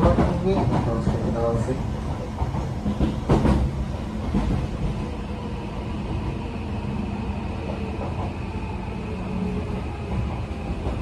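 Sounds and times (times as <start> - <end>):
train wheels rumbling on rail: 0.0 - 11.0
sharp knock from rails: 2.4 - 3.7.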